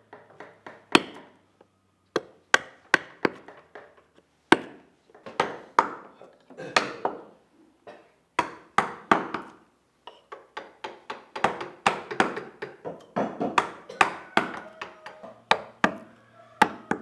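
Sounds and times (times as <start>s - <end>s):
carving tool knocking into wood: 10.6s - 17.0s.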